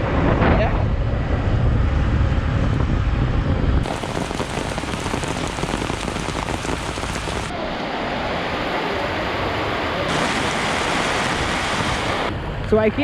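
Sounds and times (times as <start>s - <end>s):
wind rumble on microphone: 0.0s - 13.0s
heavy rain on hard surfaces: 3.8s - 7.6s, 10.1s - 12.3s.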